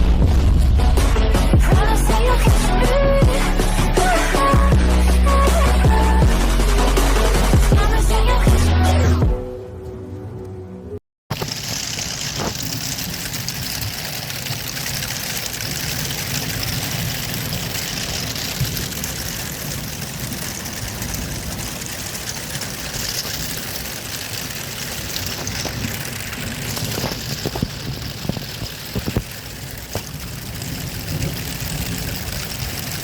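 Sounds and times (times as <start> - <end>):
low rumble: 0.0 - 8.6, 11.4 - 33.0
heavy rain falling: 11.3 - 33.0.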